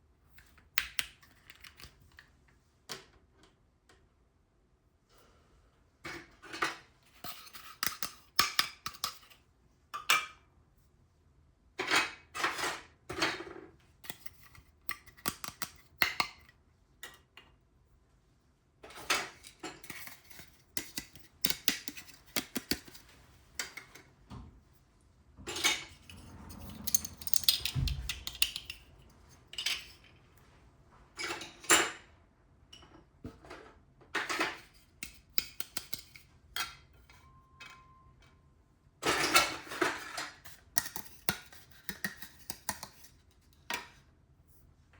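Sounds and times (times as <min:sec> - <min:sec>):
rustling and clatter: 0:22.1 - 0:30.4
low thump: 0:26.2 - 0:28.5.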